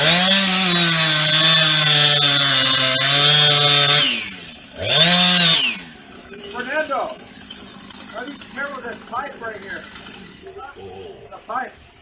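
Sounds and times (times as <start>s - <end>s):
chainsaw cutting wood: 0.0s - 10.8s
chainsaw idling: 0.0s - 12.0s.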